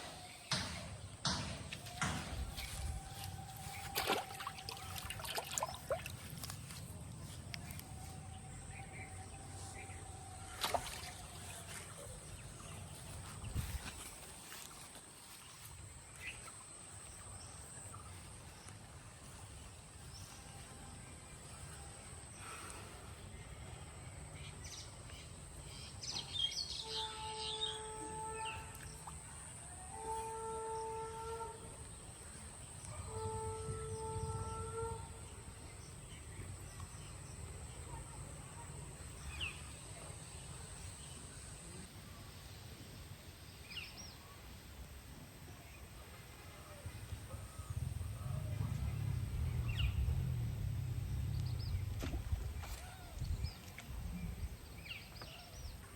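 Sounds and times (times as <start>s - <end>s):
low rumble: 47.6s - 54.6s.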